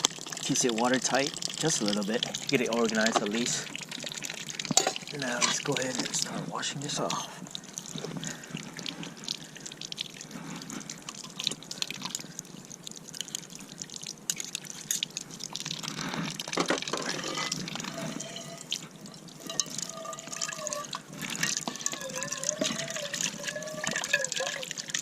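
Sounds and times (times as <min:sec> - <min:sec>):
water dripping and trickling: 0:00.0 - 0:25.0
scrubbing dishes: 0:04.6 - 0:06.3, 0:16.4 - 0:25.0
cookware clinking: 0:04.7 - 0:05.7.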